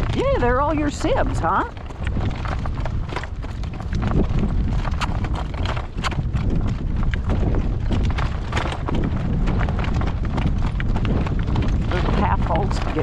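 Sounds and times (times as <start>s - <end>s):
horse hooves clip-clopping on road: 0.0s - 13.0s
wind buffeting microphone: 0.0s - 13.0s.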